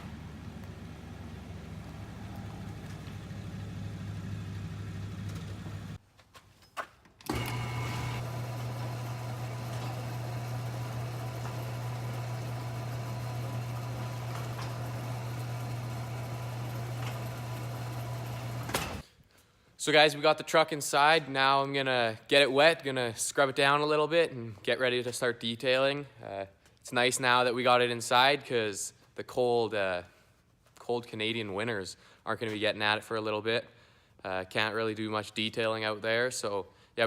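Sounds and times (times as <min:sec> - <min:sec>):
truck engine running: 0:00.0 - 0:06.0.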